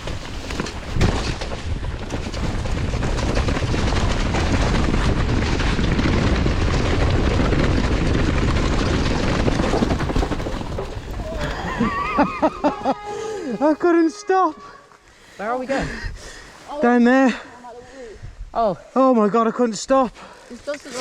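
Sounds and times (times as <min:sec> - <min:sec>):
wind buffeting microphone: 0:00.0 - 0:13.6, 0:17.8 - 0:18.6
mountain bike rumbling and rattling: 0:00.0 - 0:14.2.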